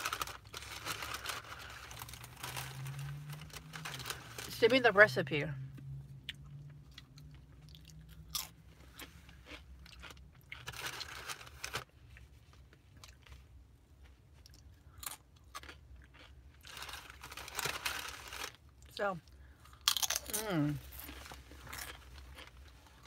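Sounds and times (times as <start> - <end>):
person chewing crunchy food: 6.2 - 23.0.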